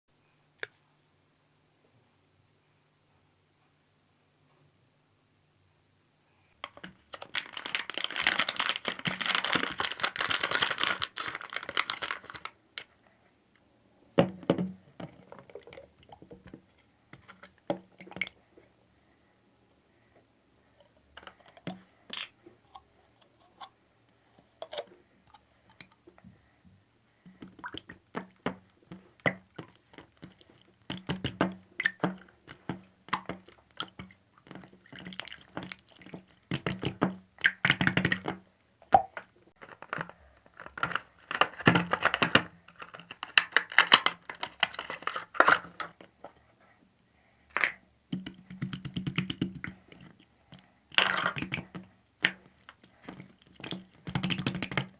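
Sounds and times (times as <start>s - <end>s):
slime squeezed with sticky pops: 29.2s - 39.2s.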